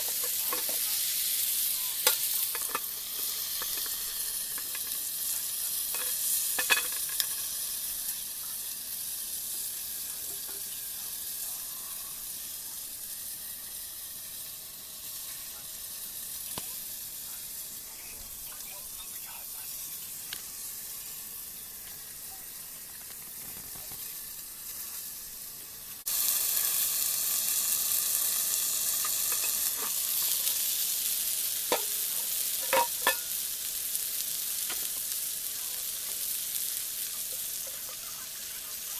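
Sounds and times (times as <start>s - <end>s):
food sizzling in a frying pan: 0.0s - 38.9s
sharp pops and crackles: 16.4s - 16.8s, 22.8s - 24.3s.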